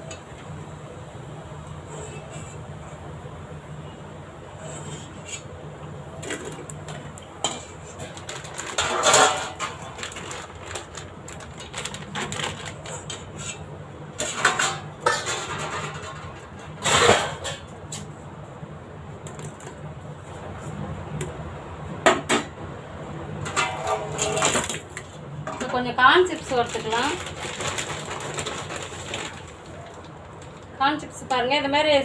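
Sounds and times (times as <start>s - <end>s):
metal utensil scraping frying pan: 8.8s - 9.9s.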